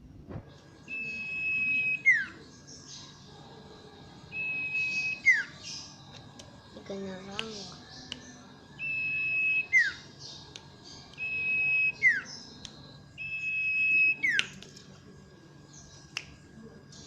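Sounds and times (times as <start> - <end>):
bird whistling song: 0.8 - 3.0, 4.3 - 6.0, 8.8 - 10.4, 11.0 - 12.6, 13.2 - 14.6.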